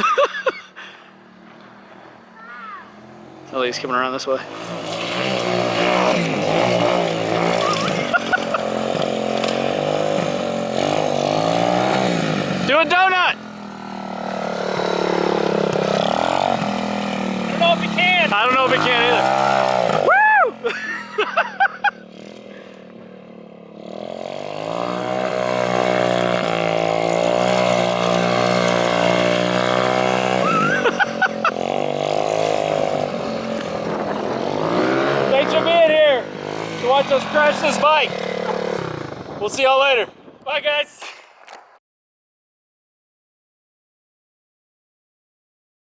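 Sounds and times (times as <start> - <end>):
minibike engine running: 0.8 - 40.2
person shouting: 2.4 - 3.0, 7.5 - 8.0, 17.5 - 20.7.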